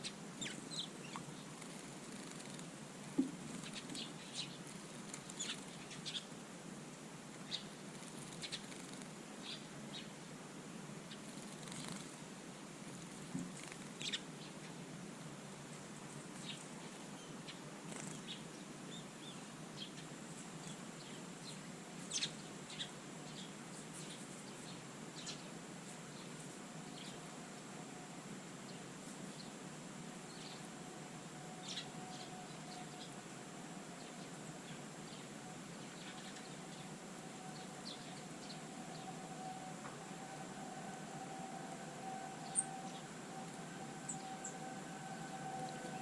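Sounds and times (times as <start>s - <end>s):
small songbirds chirping: 0.0s - 6.4s, 7.3s - 10.3s, 13.3s - 14.9s, 16.3s - 27.4s, 30.2s - 30.8s, 31.6s - 33.3s, 34.0s - 39.4s, 41.6s - 46.0s
steady background hiss: 0.0s - 46.0s.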